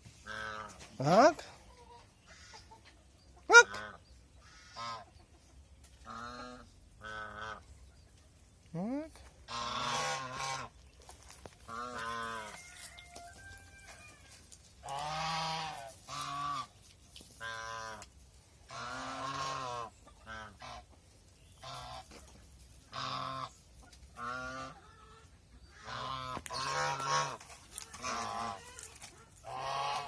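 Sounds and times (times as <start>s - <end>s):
geese honking: 3.5s - 5.1s, 9.5s - 10.7s, 14.8s - 16.7s, 22.9s - 23.6s, 25.7s - 30.0s.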